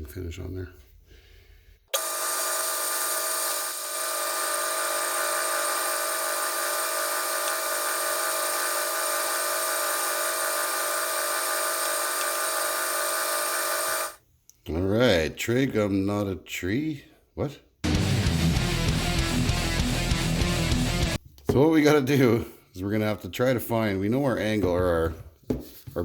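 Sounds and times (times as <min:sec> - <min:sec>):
metal lathe whining: 0:02.0 - 0:14.2.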